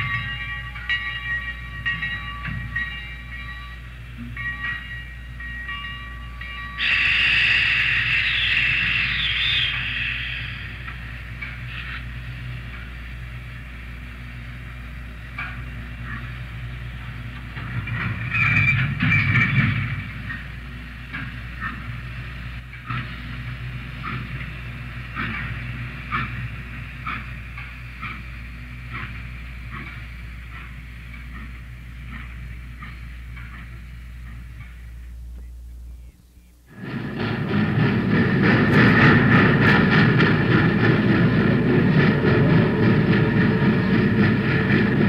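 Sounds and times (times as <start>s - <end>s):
train wheels clanking: 0.0s - 36.0s, 36.7s - 45.0s.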